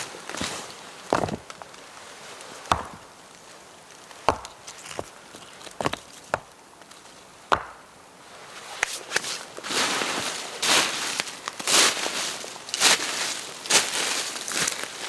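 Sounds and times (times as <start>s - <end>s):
wood being chopped: 1.1s - 1.6s, 2.7s - 3.2s, 4.2s - 5.1s, 7.5s - 7.9s.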